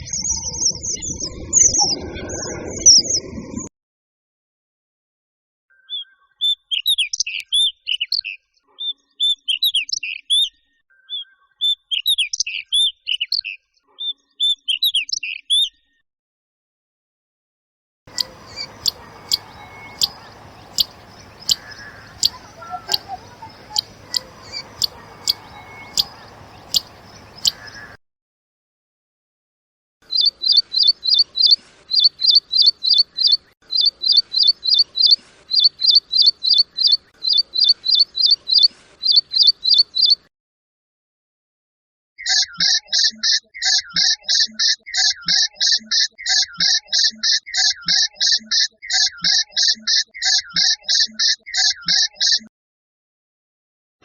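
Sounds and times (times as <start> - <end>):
background noise: 18.1 - 28.0
bird tick notes: 18.1 - 28.0
bird warbling song: 18.1 - 28.0
high repeated bird notes: 18.1 - 28.0.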